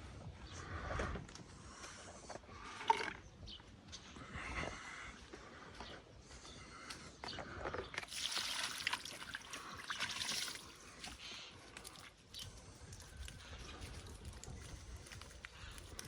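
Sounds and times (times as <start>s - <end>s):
liquid trickling and splashing: 8.0s - 12.6s
drips and clicks: 8.0s - 15.3s.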